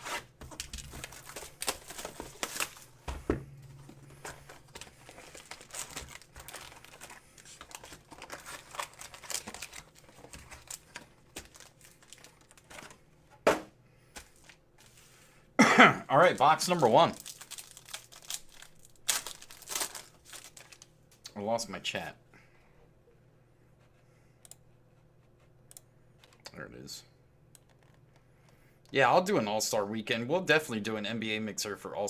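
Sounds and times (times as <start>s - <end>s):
plastic wrapping crinkling: 0.0s - 13.0s, 16.2s - 21.0s.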